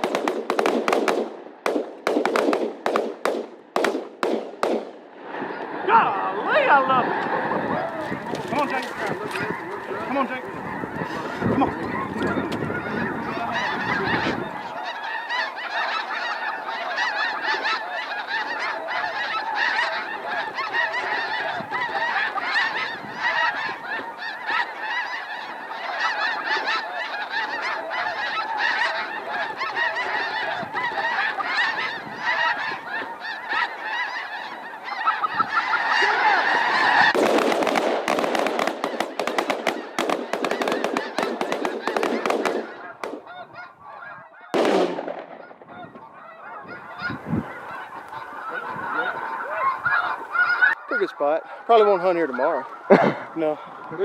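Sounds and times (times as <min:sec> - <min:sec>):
shotgun fire: 0:00.0 - 0:05.0, 0:37.1 - 0:43.3, 0:44.5 - 0:45.7
snow geese honking: 0:05.3 - 0:54.0.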